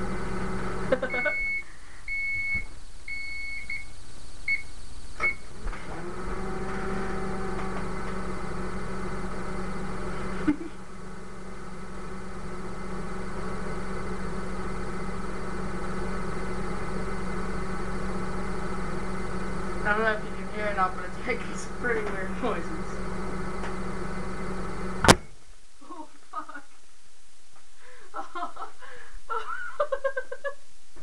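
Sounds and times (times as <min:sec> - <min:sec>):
microwave oven beeping: 0:00.0 - 0:10.6, 0:11.3 - 0:19.8
microwave running with steady hum: 0:00.0 - 0:25.4, 0:27.9 - 0:30.6
sharp pop: 0:25.0 - 0:25.3.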